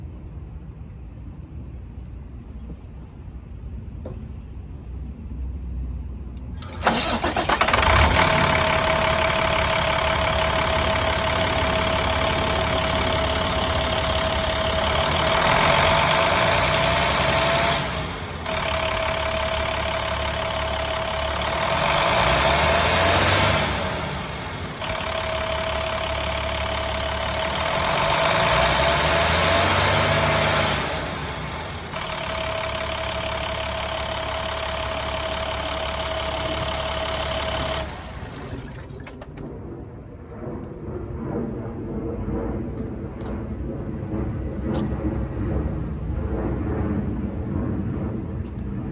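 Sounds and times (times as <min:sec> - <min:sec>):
engine whine: 0:00.0 - 0:48.9
diesel engine starting and idling: 0:06.4 - 0:39.5
engine revving: 0:06.6 - 0:39.3.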